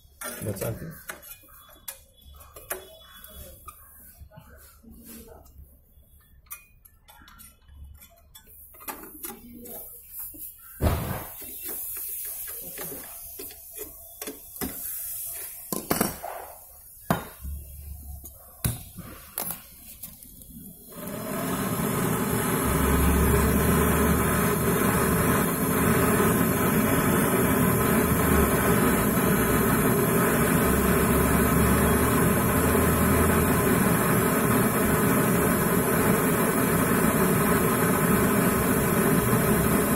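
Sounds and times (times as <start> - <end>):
gas torch flame hissing: 10.2 - 15.6, 20.6 - 39.9.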